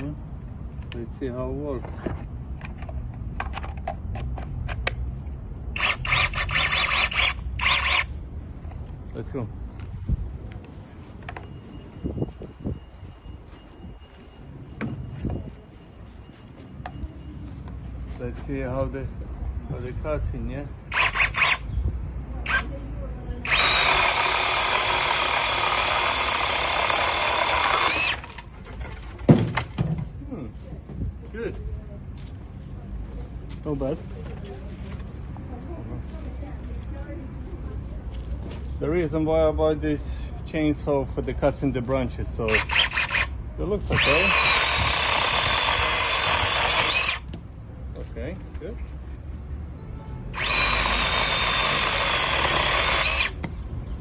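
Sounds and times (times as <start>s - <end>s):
chainsaw chain running: 5.8s - 8.1s, 20.9s - 21.6s, 23.4s - 28.5s, 42.5s - 43.3s, 43.9s - 47.3s, 50.4s - 53.4s.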